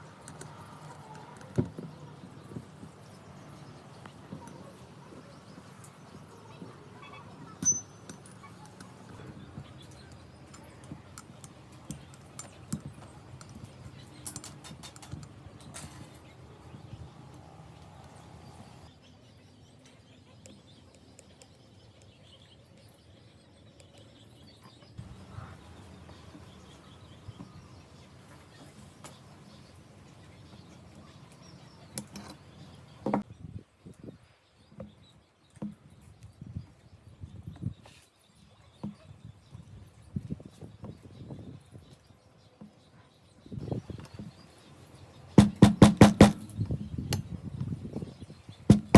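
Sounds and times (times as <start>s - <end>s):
small parts and tools clicking: 9.8s - 16.3s, 31.3s - 33.2s.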